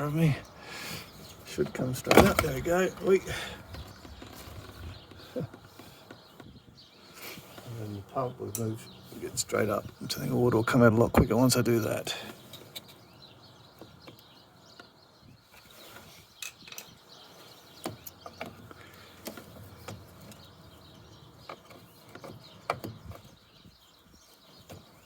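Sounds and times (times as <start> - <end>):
light plastic clicks and knocks: 17.8 - 20.5, 21.4 - 23.4.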